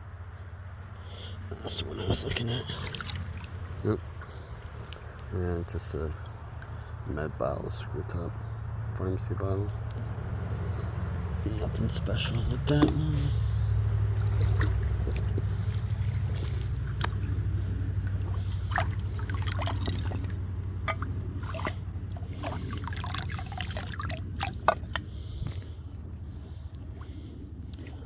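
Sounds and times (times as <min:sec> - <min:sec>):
creek water trickling: 0:00.1 - 0:28.0
water drips: 0:02.2 - 0:05.3, 0:12.6 - 0:28.0
low rumble: 0:06.1 - 0:28.0.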